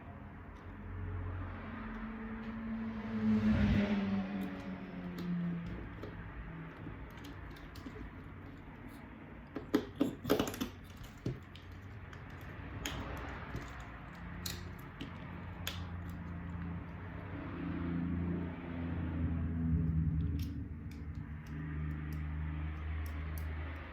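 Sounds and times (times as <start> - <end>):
small parts clicking: 4.4 - 17.0, 19.8 - 23.9.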